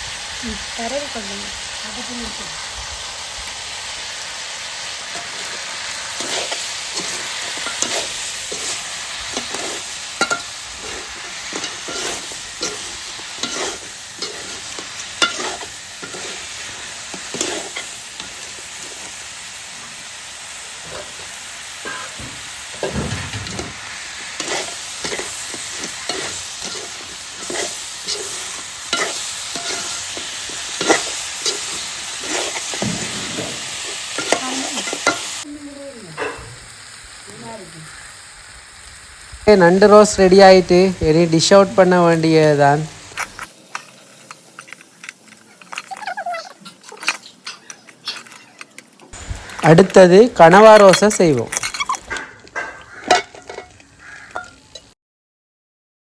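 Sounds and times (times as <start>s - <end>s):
crab frying in a pan: 0.0s - 55.0s
spoon scraping a pan: 5.1s - 19.1s, 20.8s - 35.4s, 43.0s - 54.9s.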